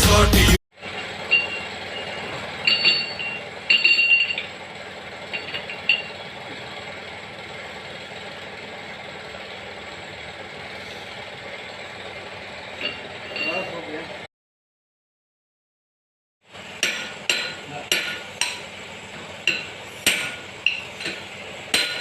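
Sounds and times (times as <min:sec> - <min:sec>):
workshop machinery hum: 0:00.0 - 0:14.3, 0:16.4 - 0:22.0
ringing metallic clinks: 0:01.3 - 0:04.5, 0:05.3 - 0:06.2, 0:12.8 - 0:13.9.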